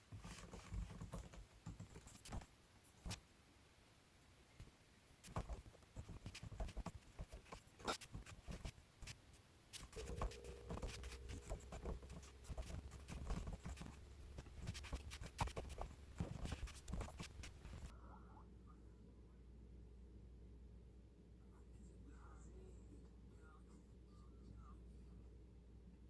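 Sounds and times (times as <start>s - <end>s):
typing on computer keyboard: 9.8s - 17.9s.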